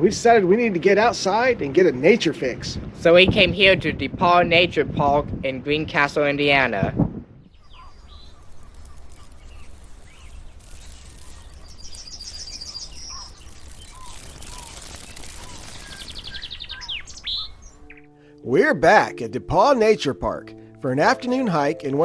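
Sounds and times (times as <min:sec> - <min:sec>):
bird chirps: 0:07.5 - 0:22.0
high bird trill: 0:07.5 - 0:22.0.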